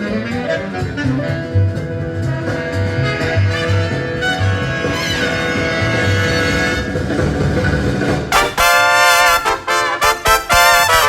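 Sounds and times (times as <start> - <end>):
big-band jazz with brass: 0.0 - 11.0
walking bass line: 0.0 - 11.0.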